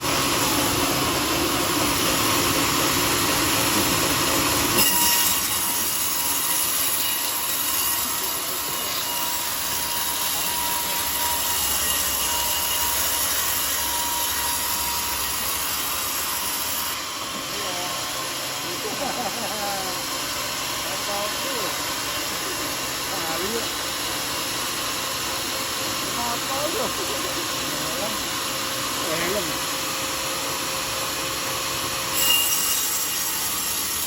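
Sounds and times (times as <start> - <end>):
sawmill saw cutting log: 0.0 - 34.0.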